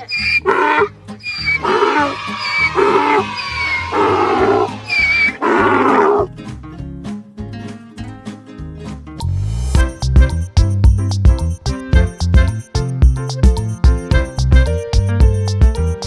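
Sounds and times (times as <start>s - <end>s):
background music: 9.6s - 16.0s.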